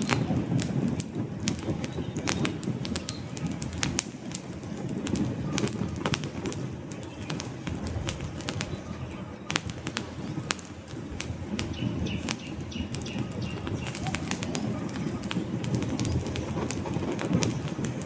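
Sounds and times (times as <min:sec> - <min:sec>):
logs crackling and popping: 0:00.0 - 0:18.0
low rush of flame: 0:00.0 - 0:18.0.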